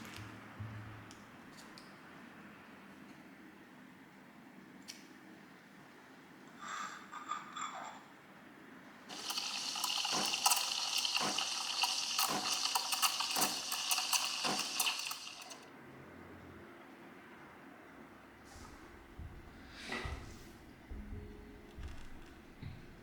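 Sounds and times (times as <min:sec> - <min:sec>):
water running from a tap: 0:09.1 - 0:15.6.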